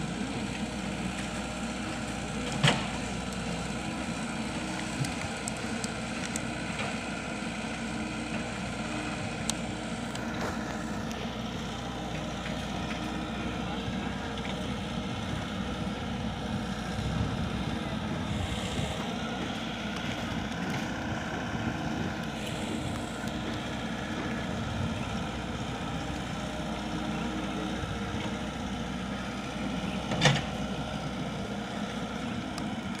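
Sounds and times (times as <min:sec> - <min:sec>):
diesel excavator engine running: 0:00.0 - 0:33.0.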